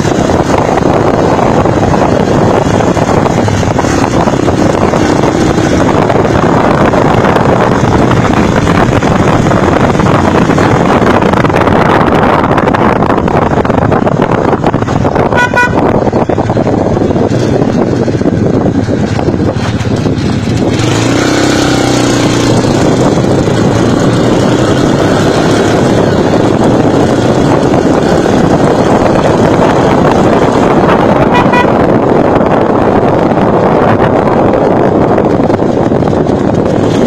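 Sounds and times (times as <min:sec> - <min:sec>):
motorcycle engine and road noise: 0:00.0 - 0:37.0
vehicle horn toot: 0:15.3 - 0:15.9, 0:30.9 - 0:31.9.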